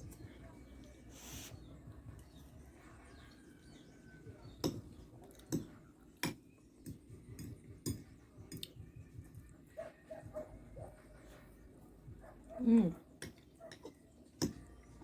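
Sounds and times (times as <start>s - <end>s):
cutlery clinking on a plate: 4.6s - 8.8s, 13.2s - 14.7s.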